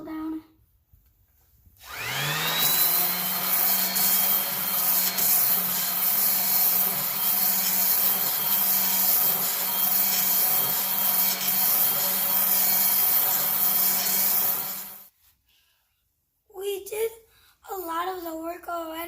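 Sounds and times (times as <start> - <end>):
power sander on wood: 1.8 - 15.1.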